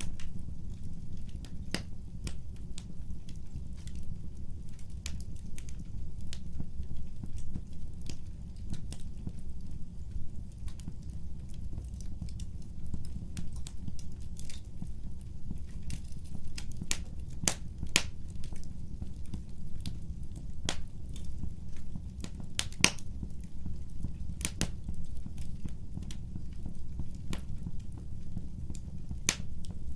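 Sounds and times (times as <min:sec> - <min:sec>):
wood fire crackling: 0:00.0 - 0:29.9.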